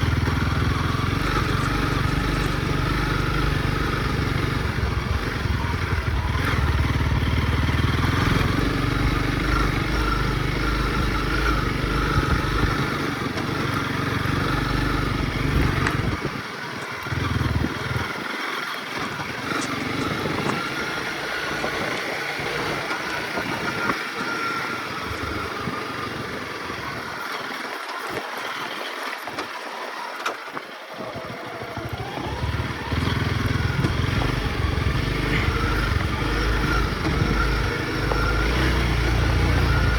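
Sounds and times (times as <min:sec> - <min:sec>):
wind rumble on microphone: 0:00.0 - 0:18.4, 0:19.0 - 0:27.2
motorcycle engine running: 0:00.0 - 0:39.9.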